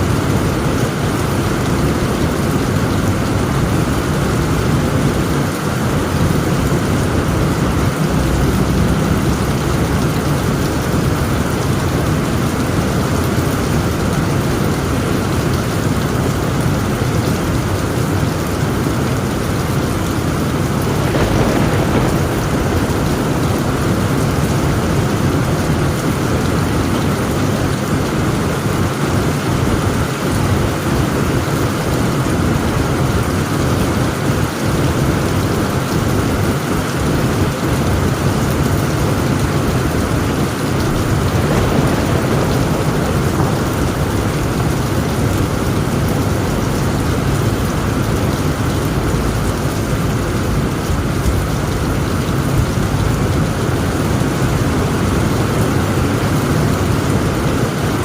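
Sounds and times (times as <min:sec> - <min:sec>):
low thunder rumble: 0:00.0 - 0:57.8
heavy rain on a tent roof: 0:00.0 - 0:58.0.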